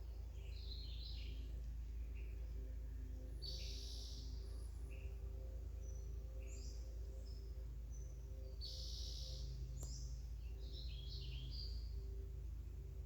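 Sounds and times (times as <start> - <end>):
low outdoor rumble: 9.3 - 13.0.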